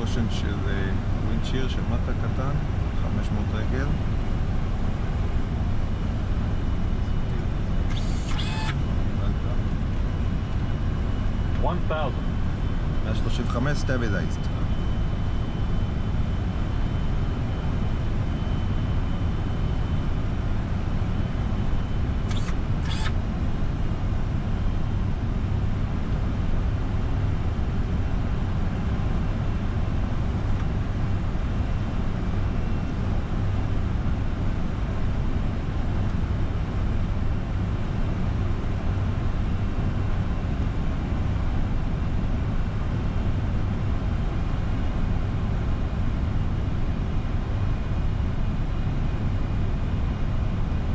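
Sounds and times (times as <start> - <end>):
short clicks: 7.9 - 8.8, 22.3 - 23.2.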